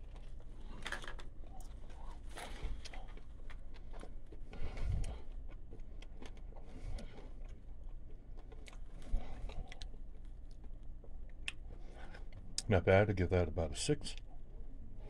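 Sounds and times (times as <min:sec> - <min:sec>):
man chewing: 0:00.0 - 0:12.6
low steady hum: 0:00.0 - 0:15.0.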